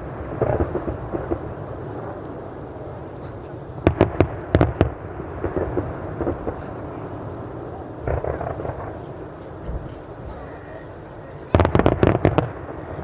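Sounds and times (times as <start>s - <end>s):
sharp firework cracks: 0.0s - 2.5s, 3.1s - 7.1s, 8.0s - 10.0s, 11.5s - 13.0s
fireworks booming: 0.0s - 13.0s.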